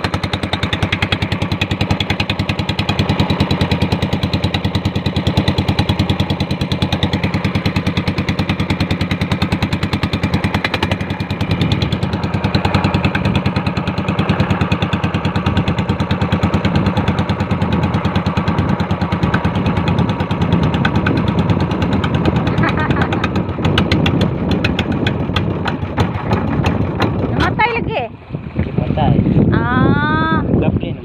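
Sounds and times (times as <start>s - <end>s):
boat engine chugging: 0.0s - 31.0s.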